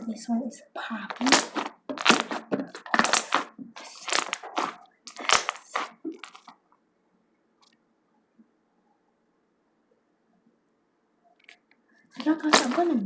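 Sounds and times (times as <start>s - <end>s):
slime squelching and popping: 1.0s - 6.6s, 12.2s - 13.0s.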